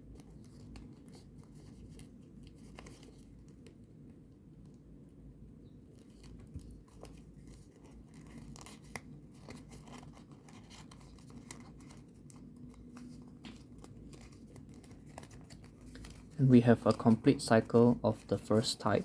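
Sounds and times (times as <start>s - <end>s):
paper rustling: 0.1s - 3.7s, 6.0s - 19.0s
crisp paper ticks: 6.0s - 19.0s.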